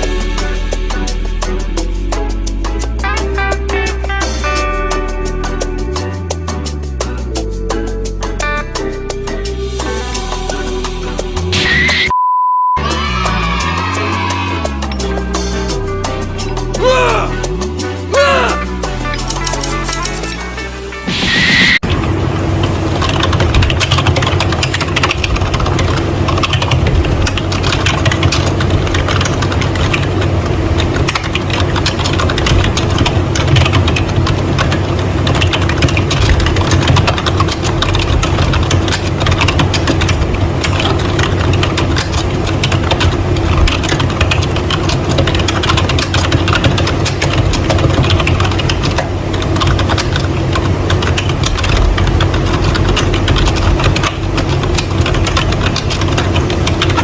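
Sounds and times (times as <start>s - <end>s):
fast keyboard typing: 42.7s - 57.0s.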